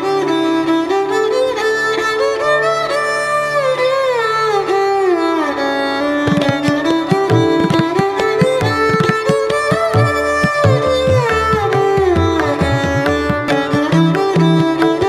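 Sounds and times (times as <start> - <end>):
bowed string melody: 0.0 - 15.0
hand drum strokes: 6.3 - 14.9.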